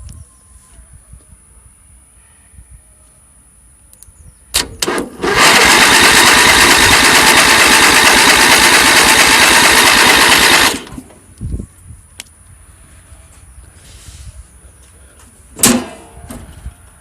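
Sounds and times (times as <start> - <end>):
tractor engine starting and running: 4.5 - 11.4, 15.5 - 16.6.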